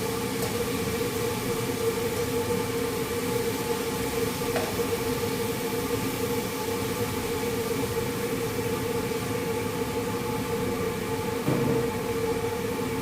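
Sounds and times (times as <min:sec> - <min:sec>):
mechanical hum with hiss: 0:00.0 - 0:13.0
brief knock: 0:11.4 - 0:11.9.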